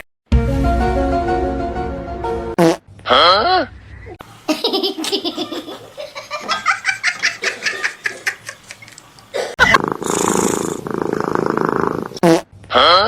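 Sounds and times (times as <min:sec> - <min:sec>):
people laughing: 0:04.5 - 0:09.0
cat purring rumble: 0:09.6 - 0:12.2.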